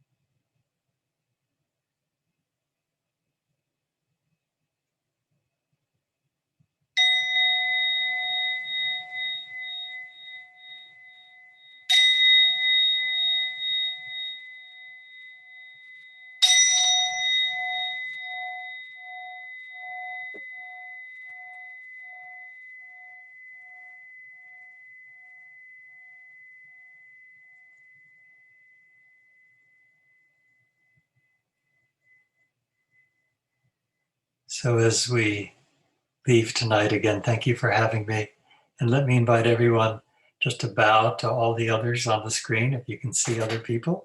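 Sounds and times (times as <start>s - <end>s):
meditation bell ringing: 7.0s - 35.4s.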